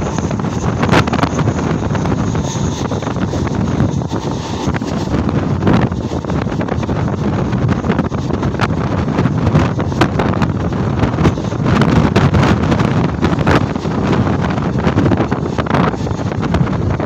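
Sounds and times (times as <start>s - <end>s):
train rumble: 0.0s - 17.0s
wheels clicking on track: 0.0s - 17.0s
wind buffeting microphone: 0.0s - 17.0s.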